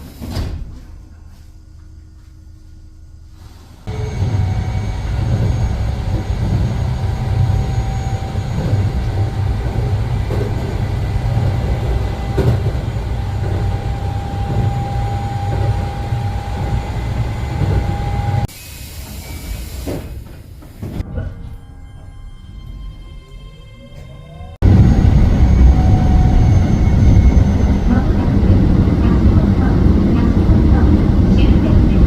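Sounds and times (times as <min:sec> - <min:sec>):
train rumble: 0:02.7 - 0:32.0
humming tone: 0:03.9 - 0:18.5, 0:21.2 - 0:32.0.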